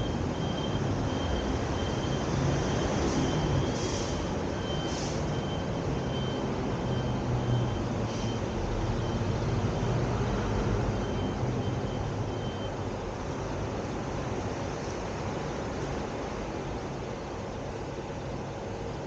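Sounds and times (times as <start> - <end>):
car road and engine noise: 0.0 - 19.0
faint high beep: 4.6 - 10.0, 11.0 - 12.8.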